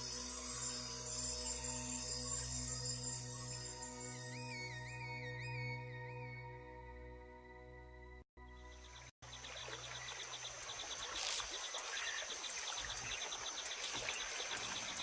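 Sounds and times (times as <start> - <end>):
soft music: 0.0 - 11.2
cricket-like chirps: 8.5 - 15.0
insect chorus trilling: 9.2 - 15.0.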